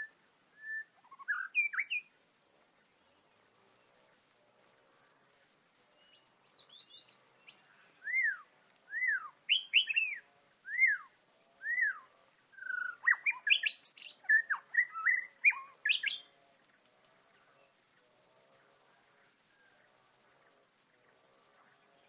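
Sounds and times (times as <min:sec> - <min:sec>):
bird singing whistled notes: 0:00.0 - 0:02.2, 0:06.0 - 0:16.4.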